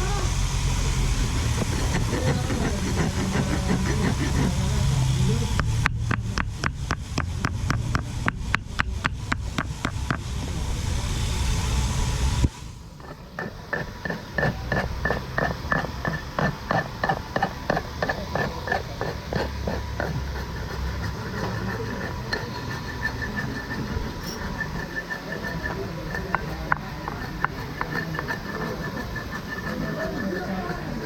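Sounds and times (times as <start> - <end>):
loud rushing noise: 0.0 - 17.7.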